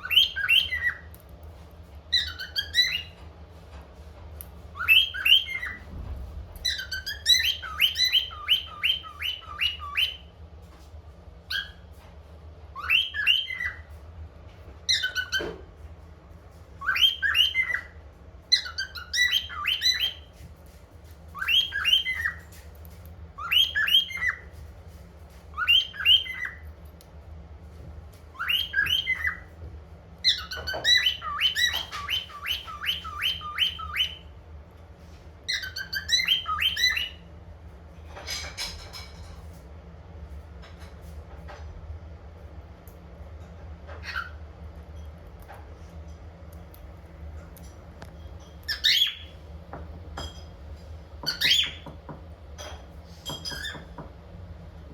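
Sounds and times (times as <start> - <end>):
cockatiel whistling and chirping: 0.0 - 1.2, 2.1 - 3.2, 4.7 - 6.0, 6.6 - 10.4, 11.5 - 11.9, 12.7 - 14.0, 14.8 - 15.6, 16.8 - 20.7, 21.3 - 24.6, 25.5 - 26.7, 28.3 - 29.6, 30.2 - 34.4, 35.4 - 37.3, 44.0 - 44.4, 48.4 - 49.4, 51.2 - 52.0, 53.2 - 54.0
faint low hum: 0.0 - 54.9.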